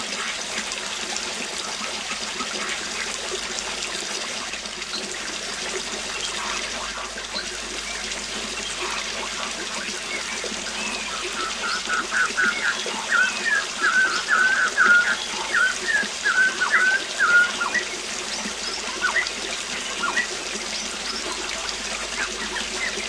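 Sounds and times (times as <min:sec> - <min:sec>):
waterfall rushing: 0:00.0 - 0:23.0
faint bird chirps: 0:06.0 - 0:23.0.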